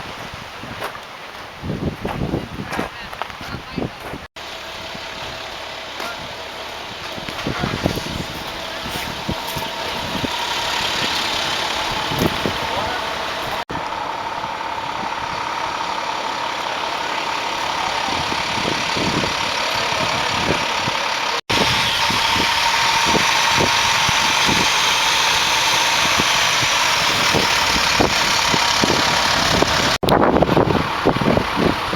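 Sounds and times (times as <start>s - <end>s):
helicopter engines and rotor: 4.4s - 31.9s.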